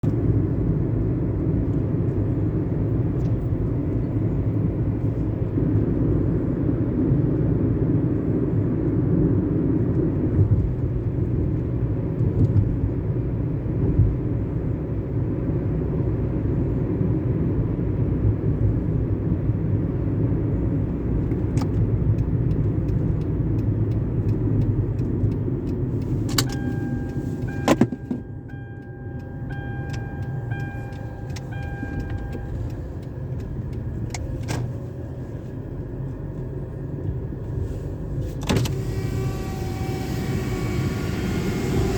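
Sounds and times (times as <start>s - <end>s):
car engine and tyre rumble: 0.0s - 41.9s
steady high tone: 26.5s - 33.2s.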